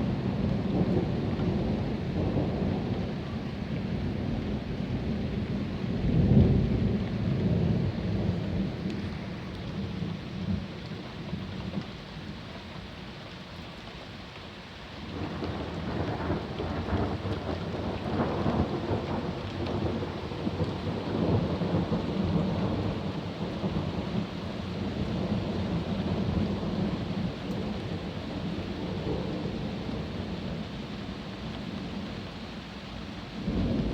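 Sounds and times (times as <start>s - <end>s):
steady rain: 0.0s - 33.9s
thunder rumbling: 15.1s - 30.6s, 33.4s - 33.9s.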